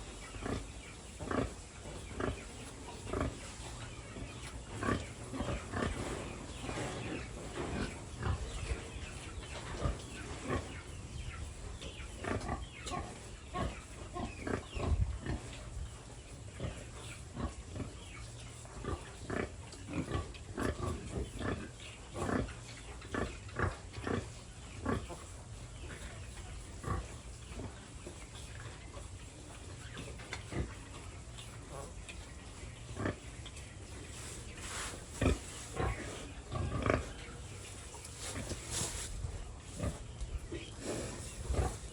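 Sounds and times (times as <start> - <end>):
pigs grunting and squealing: 12.2 - 15.6, 35.2 - 37.5.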